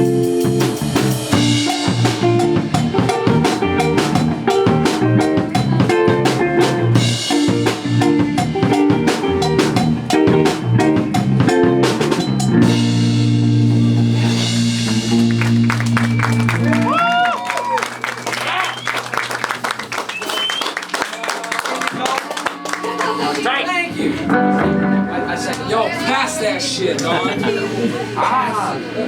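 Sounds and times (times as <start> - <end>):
drum kit hits: 0.0 - 16.9
indie rock band playing: 0.0 - 26.6
guitar chord ringing out: 22.4 - 26.2.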